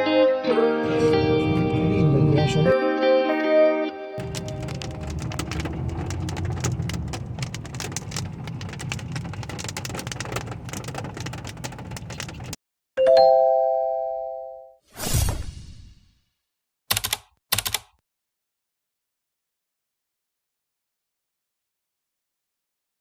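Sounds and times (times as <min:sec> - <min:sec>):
rain falling: 0:04.2 - 0:12.6.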